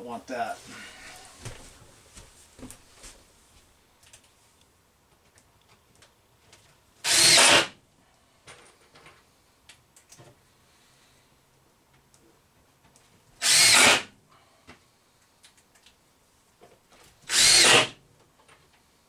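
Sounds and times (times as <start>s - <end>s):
power drill driving screw: 7.0s - 7.8s, 13.4s - 14.1s, 17.3s - 18.0s.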